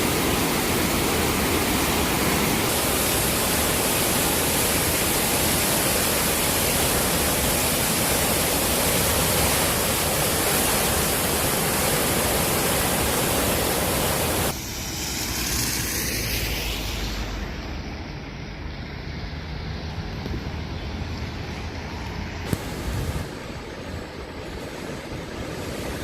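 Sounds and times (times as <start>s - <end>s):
fast-flowing creek water rushing: 0.0s - 14.6s
quieter rushing noise: 0.0s - 26.0s.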